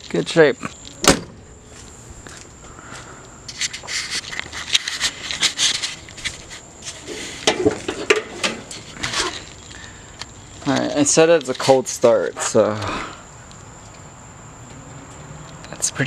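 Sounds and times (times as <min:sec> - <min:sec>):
handling rubbing and scraping: 0:03.4 - 0:13.2.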